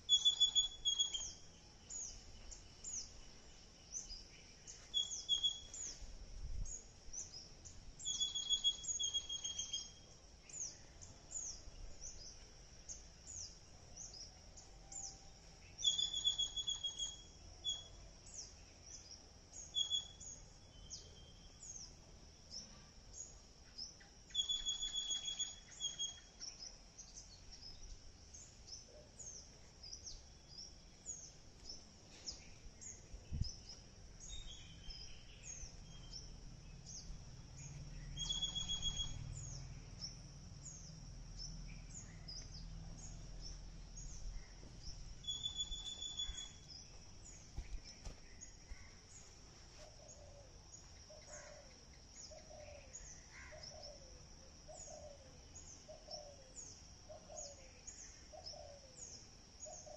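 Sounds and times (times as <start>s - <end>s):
songbird phrase with trill: 0.0s - 2.2s, 32.8s - 47.4s
falling high chirps: 38.2s - 39.2s.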